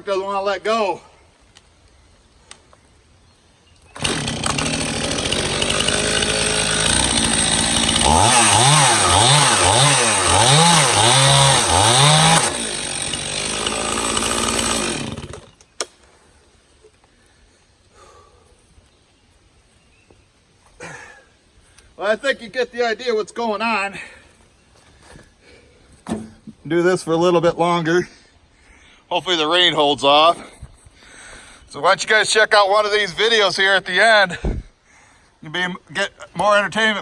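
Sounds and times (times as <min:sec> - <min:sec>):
chainsaw cutting: 0:03.9 - 0:15.7.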